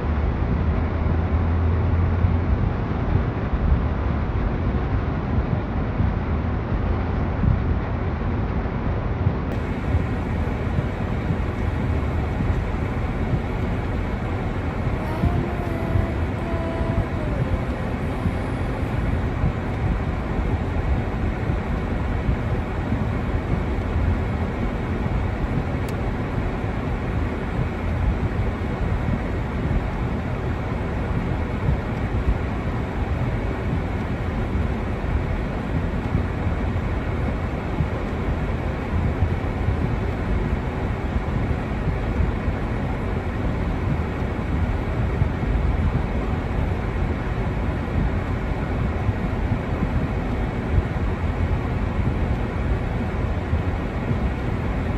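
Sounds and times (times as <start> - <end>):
wind rumbling in snowstorm: 0.0 - 54.9.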